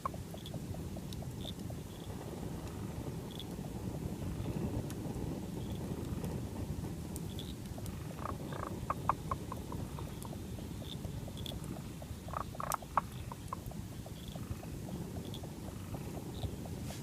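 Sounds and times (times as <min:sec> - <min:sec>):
frogs ticking calls: 0:00.0 - 0:06.5, 0:07.2 - 0:16.8
frogs clicking croaks: 0:00.0 - 0:16.8
low noise wash: 0:00.0 - 0:17.0.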